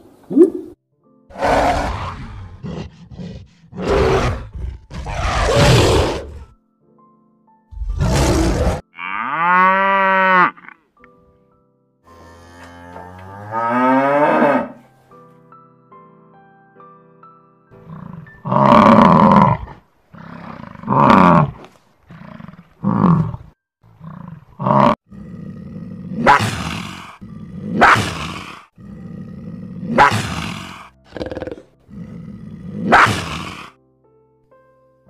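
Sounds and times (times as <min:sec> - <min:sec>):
animal bellows and roars: 0:01.3 - 0:06.6, 0:07.8 - 0:10.8, 0:17.8 - 0:33.7
soft background music: 0:03.8 - 0:19.9, 0:28.8 - 0:35.0.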